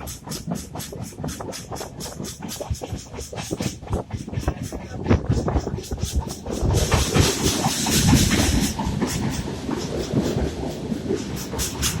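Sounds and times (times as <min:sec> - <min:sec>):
train wheels rumbling on rails: 0:00.0 - 0:12.0
hiss: 0:05.9 - 0:12.0.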